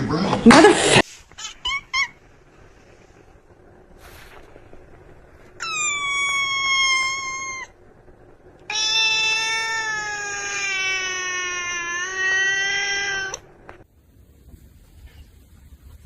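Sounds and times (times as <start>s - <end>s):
cat meowing: 5.6s - 7.8s, 8.6s - 13.4s.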